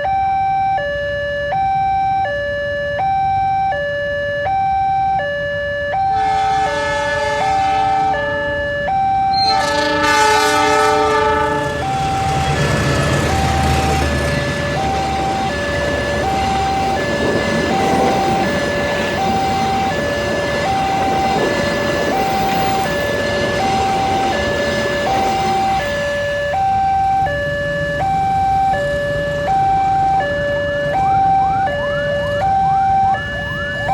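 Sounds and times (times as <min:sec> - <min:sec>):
level-crossing two-tone alarm: 0:00.0 - 0:33.9
passing train rumble: 0:05.9 - 0:33.9
train horn: 0:06.0 - 0:17.0.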